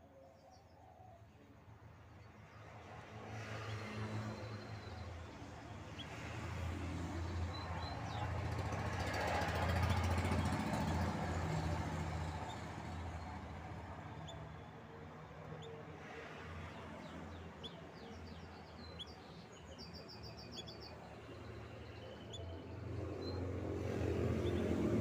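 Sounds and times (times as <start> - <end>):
motor vehicle passing: 6.4 - 14.5, 22.2 - 25.0
bird chirps: 14.1 - 14.8, 17.5 - 23.5.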